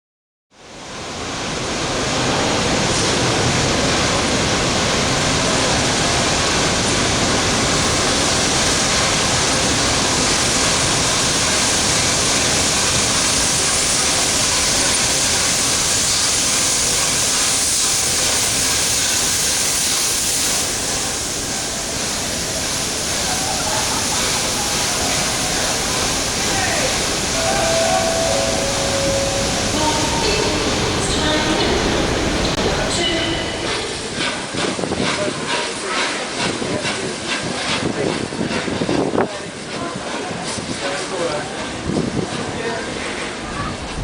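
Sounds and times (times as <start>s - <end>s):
steam locomotive hissing: 5.9s - 35.0s.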